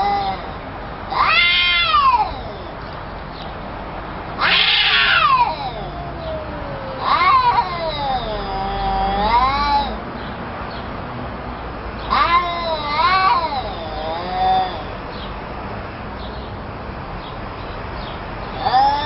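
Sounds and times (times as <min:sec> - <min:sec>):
cats yowling in a fight: 0:00.0 - 0:02.8, 0:04.4 - 0:10.0, 0:12.1 - 0:15.0, 0:18.5 - 0:19.0.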